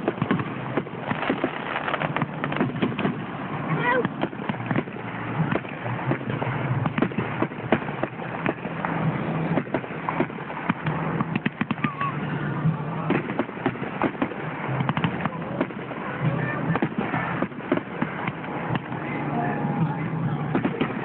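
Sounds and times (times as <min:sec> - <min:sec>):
crowd voices: 0:00.0 - 0:21.0
fireworks popping and crackling: 0:00.0 - 0:21.0.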